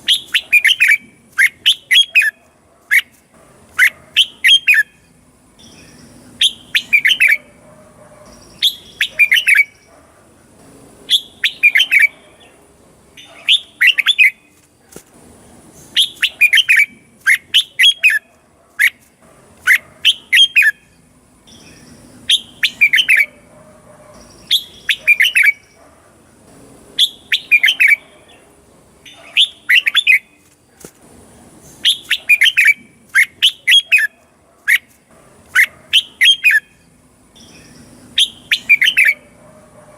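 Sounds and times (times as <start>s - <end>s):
bird singing whistled notes: 0.0s - 3.1s, 3.8s - 7.5s, 8.3s - 9.9s, 11.1s - 12.2s, 13.2s - 14.6s, 15.8s - 19.0s, 19.7s - 23.4s, 24.2s - 25.8s, 27.0s - 28.0s, 29.1s - 30.4s, 31.7s - 34.9s, 35.6s - 39.3s.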